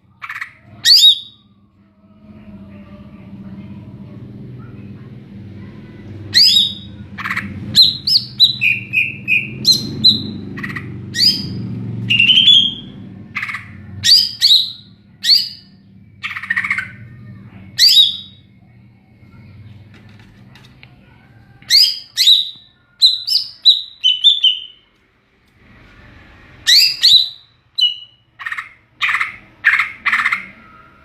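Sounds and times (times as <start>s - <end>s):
low steady hum: 0.0s - 31.0s
bird singing whistled notes: 11.2s - 12.9s, 21.7s - 24.8s, 26.7s - 28.2s.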